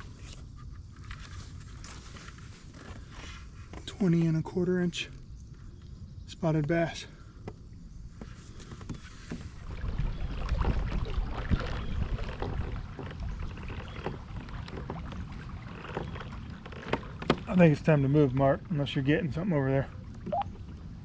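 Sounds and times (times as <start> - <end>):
water sloshing: 8.6 - 21.0.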